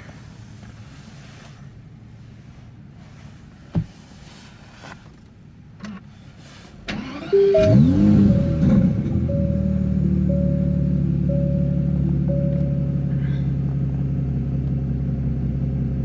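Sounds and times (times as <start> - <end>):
car engine starting and revving: 6.8 - 16.0
low hum: 7.4 - 14.8.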